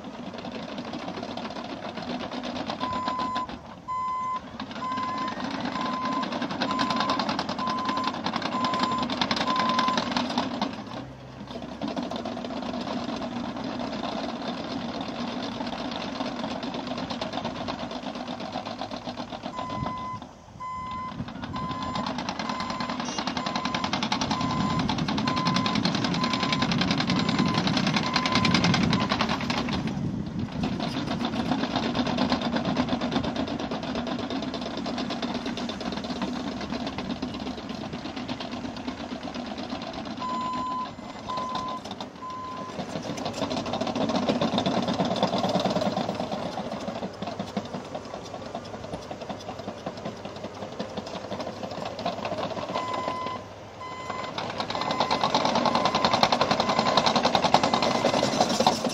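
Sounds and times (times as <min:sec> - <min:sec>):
bulldozer diesel engine running: 0:00.0 - 0:58.9
reversing alarm beeps: 0:02.8 - 0:10.1, 0:19.5 - 0:29.2, 0:40.2 - 0:42.8, 0:52.7 - 0:58.5.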